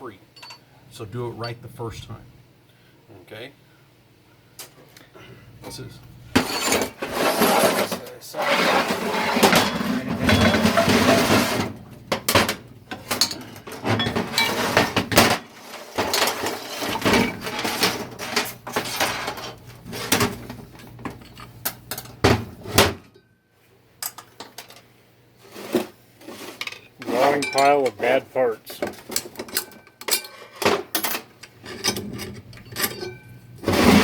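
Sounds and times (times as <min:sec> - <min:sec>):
metal parts clinking and clattering: 0:12.9 - 0:19.6.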